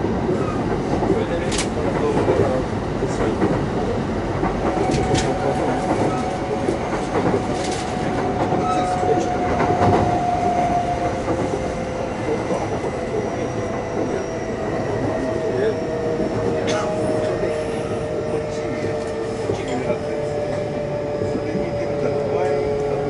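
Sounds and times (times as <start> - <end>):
train wheels rumbling on rail: 0.0 - 23.0
rail-joint clicks: 1.3 - 3.6, 4.4 - 11.6.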